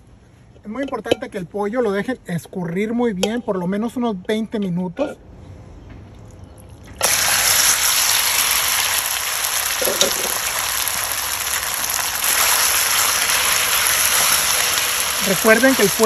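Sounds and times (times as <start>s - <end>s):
chicken sizzling in a pan: 7.0s - 16.0s.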